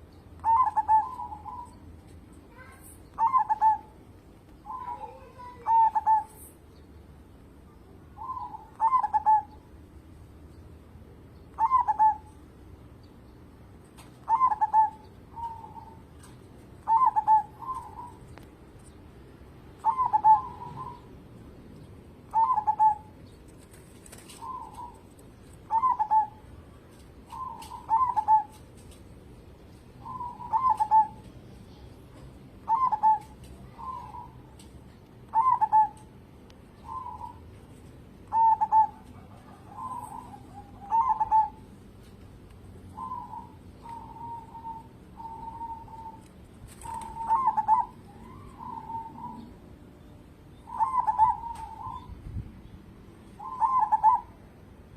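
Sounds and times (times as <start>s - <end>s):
dove cooing: 0.4s - 1.8s, 2.6s - 3.9s, 4.7s - 6.4s, 8.2s - 9.6s, 11.6s - 12.3s, 14.2s - 18.3s, 19.8s - 21.1s, 22.3s - 23.2s, 24.2s - 25.1s, 25.7s - 26.6s, 27.3s - 28.6s, 30.0s - 31.9s, 32.6s - 34.7s, 35.3s - 36.1s, 36.8s - 37.5s, 38.3s - 41.7s, 42.9s - 49.6s, 50.6s - 52.2s, 53.3s - 54.4s.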